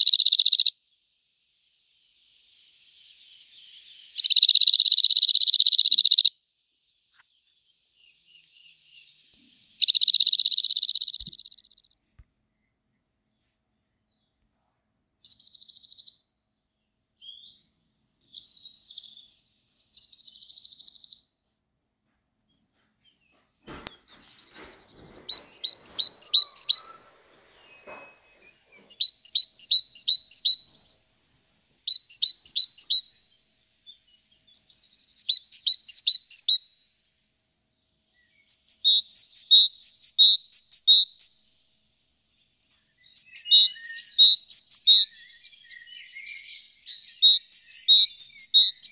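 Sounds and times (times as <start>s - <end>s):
songbird trilling: 0.0s - 0.7s, 2.5s - 6.3s, 7.8s - 11.9s, 15.2s - 16.3s, 18.2s - 21.4s, 23.7s - 31.0s, 31.9s - 33.2s, 33.9s - 36.6s, 38.1s - 41.4s, 42.3s - 48.9s
faint knock: 22.8s - 29.0s.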